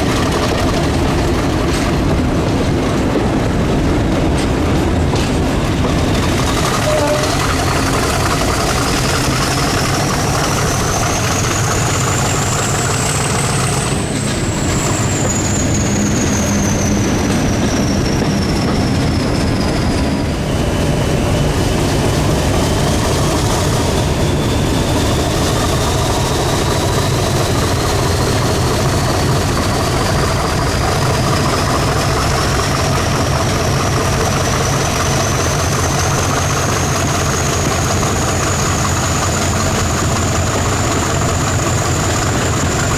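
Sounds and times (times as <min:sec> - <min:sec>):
diesel locomotive engine rumbling: 0:00.0 - 0:42.9.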